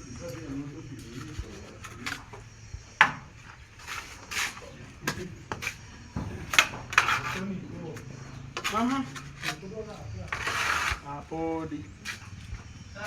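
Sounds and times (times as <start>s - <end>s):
tools knocking and scraping mortar: 0.2s - 13.0s.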